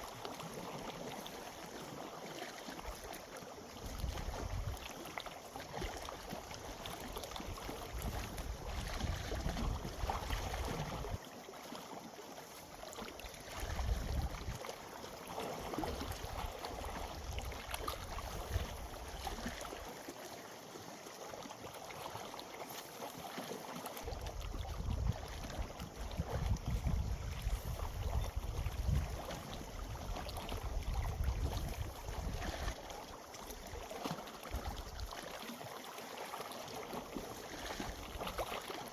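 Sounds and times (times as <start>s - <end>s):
hiss of wind and water: 0.0s - 38.9s
wind buffeting microphone: 7.8s - 11.2s, 13.6s - 14.6s, 24.4s - 32.7s.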